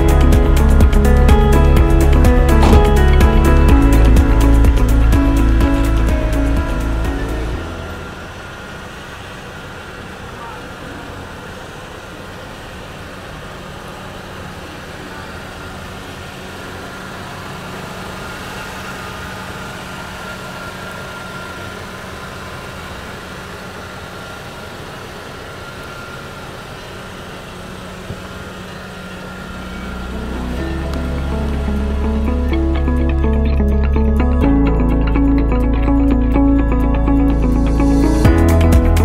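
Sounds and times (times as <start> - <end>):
car engine idling: 0.0 - 39.0.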